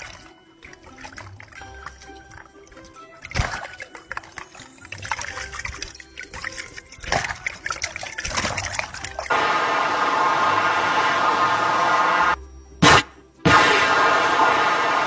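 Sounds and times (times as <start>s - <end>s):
water dripping and trickling: 0.0s - 9.3s.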